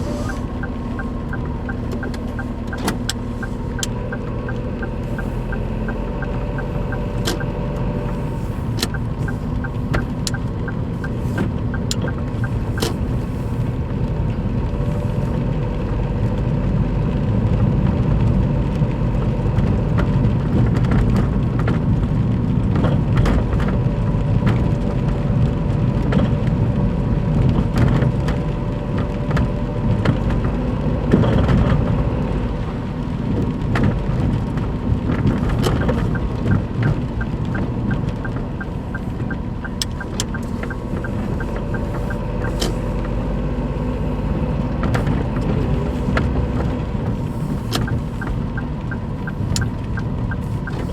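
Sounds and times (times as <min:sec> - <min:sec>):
car engine rumbling: 0:00.0 - 0:50.9
scattered clicks: 0:35.4 - 0:42.9.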